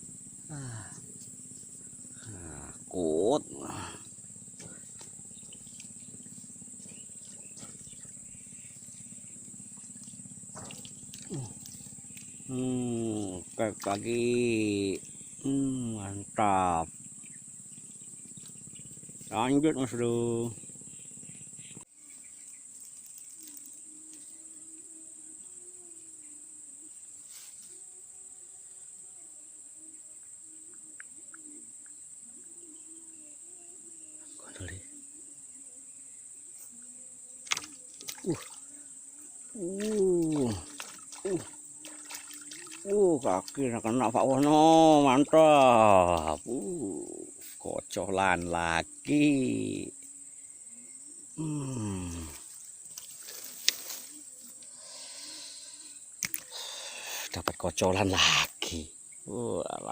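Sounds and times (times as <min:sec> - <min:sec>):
faint wavering low hum: 0:00.0 - 0:47.6
insects chirring: 0:00.0 - 0:59.9.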